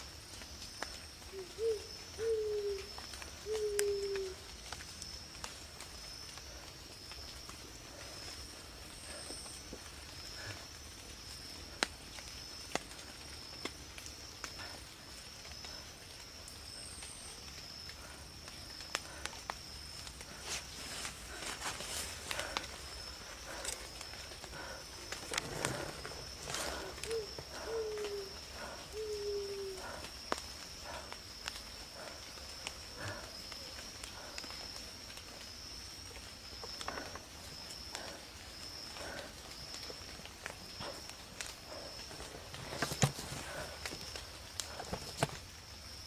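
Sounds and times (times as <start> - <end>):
insects chirping: 0.0 - 46.0
low hooting bird calls: 1.2 - 4.6, 20.0 - 34.4
rustles and clicks: 39.8 - 45.5.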